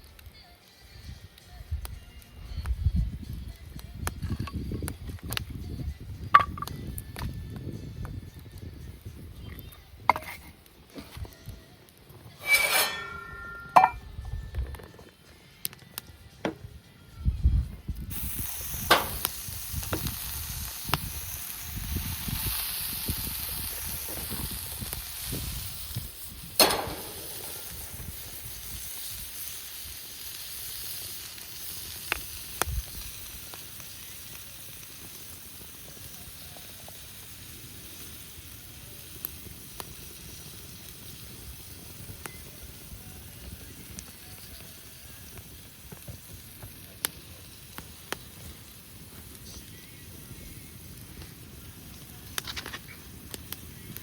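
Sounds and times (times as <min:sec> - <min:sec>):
food sizzling in a hot pan: 0:18.1 - 0:53.9.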